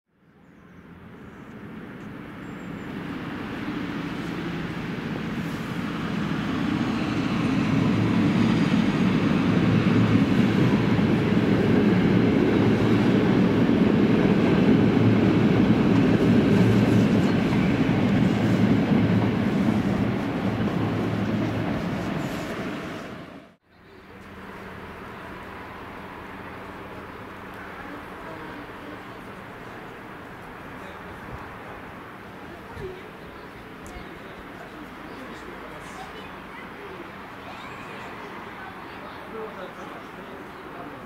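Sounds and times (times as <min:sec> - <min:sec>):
diesel locomotive engine drone: 0:00.3 - 0:41.0
train wheels rumbling: 0:02.9 - 0:23.6.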